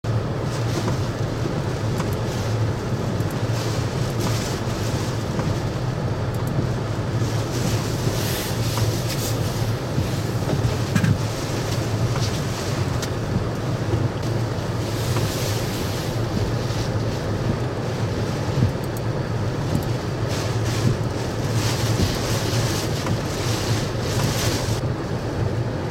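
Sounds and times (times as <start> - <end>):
waves surging and splashing: 6.7 - 24.8.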